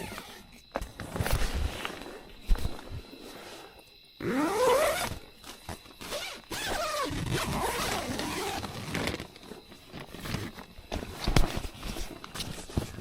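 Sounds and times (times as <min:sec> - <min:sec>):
zipper being pulled: 0:04.2 - 0:05.2, 0:06.0 - 0:09.3.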